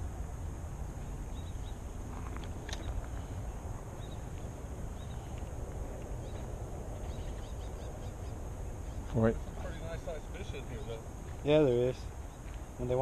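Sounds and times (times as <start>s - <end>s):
faint bird chirps: 1.3s - 1.8s, 2.7s - 5.4s, 6.2s - 11.0s.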